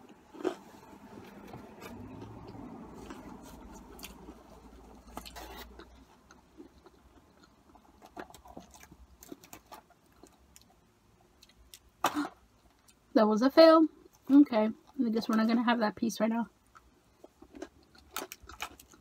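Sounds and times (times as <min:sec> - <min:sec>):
quiet chewing of fries: 0:00.0 - 0:11.9, 0:16.6 - 0:19.0.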